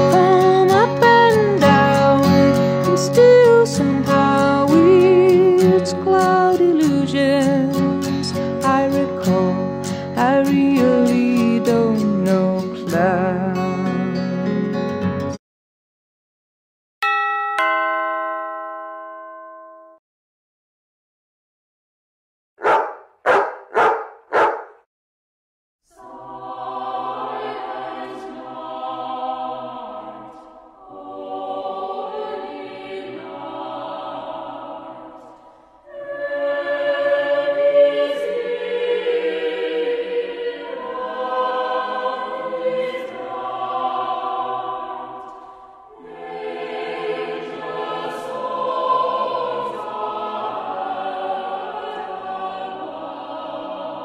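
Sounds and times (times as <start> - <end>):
choir singing: 0.0 - 13.5, 25.9 - 54.0
dog barking: 22.6 - 24.8.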